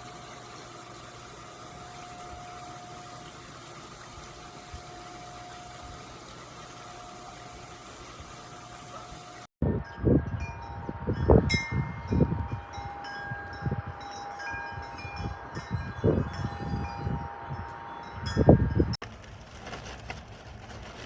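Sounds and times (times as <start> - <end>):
wind rumbling on microphone: 9.6 - 21.0
wind chimes ringing: 9.7 - 19.0.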